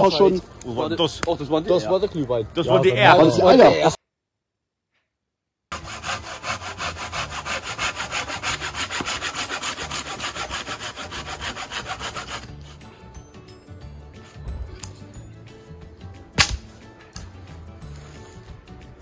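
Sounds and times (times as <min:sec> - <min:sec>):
rapid scraping strokes: 0:05.7 - 0:12.8.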